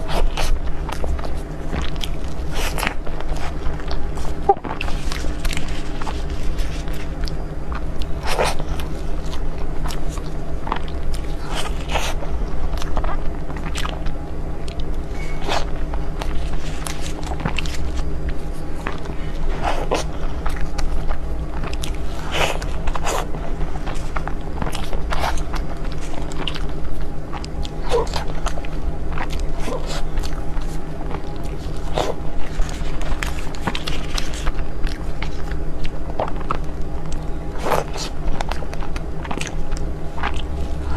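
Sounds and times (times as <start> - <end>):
close-miked eating and chewing: 0.0 - 40.9
steady low hum: 0.0 - 40.9.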